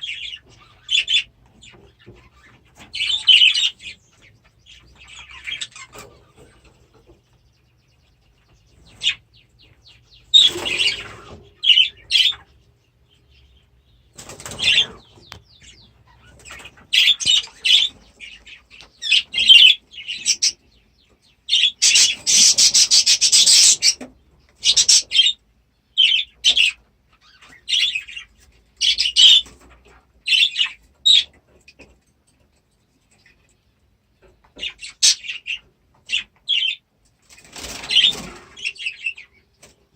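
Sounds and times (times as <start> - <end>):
budgerigars chirping: 0.0 - 31.9, 34.2 - 39.5
wings flapping: 14.2 - 15.1, 37.3 - 38.6.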